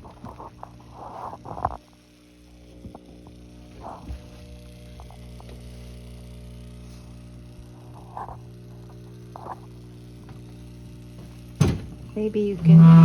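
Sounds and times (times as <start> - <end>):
electrical hum with tones: 0.0 - 13.0.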